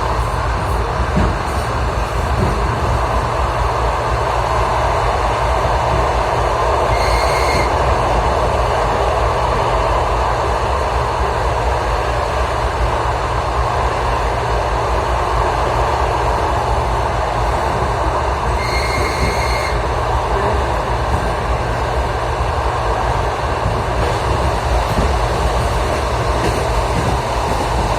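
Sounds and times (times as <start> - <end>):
train rumble inside carriage: 0.0 - 27.9
wheels squealing on rail: 6.9 - 7.8, 18.5 - 20.5.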